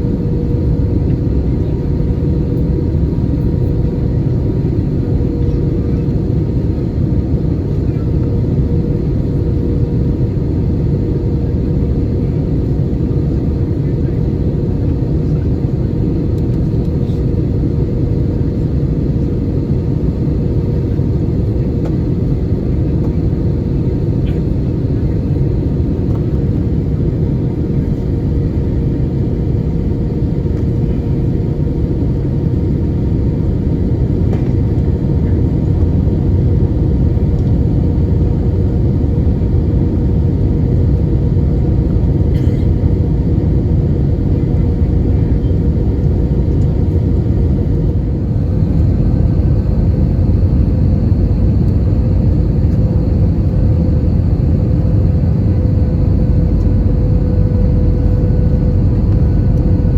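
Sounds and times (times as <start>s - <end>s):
aircraft engines and airflow rumble: 0.0s - 59.9s
faint constant hum: 33.4s - 59.9s.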